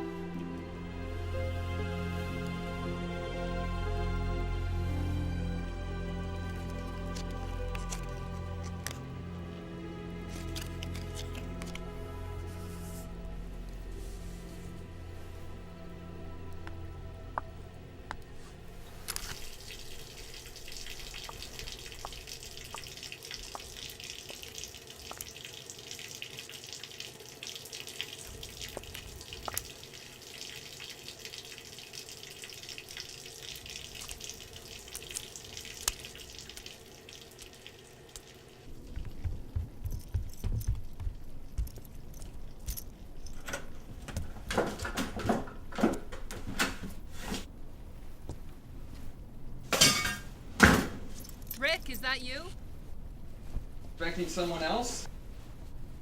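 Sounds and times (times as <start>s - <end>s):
running water hiss: 19.0s - 38.8s
water dripping: 19.1s - 40.1s.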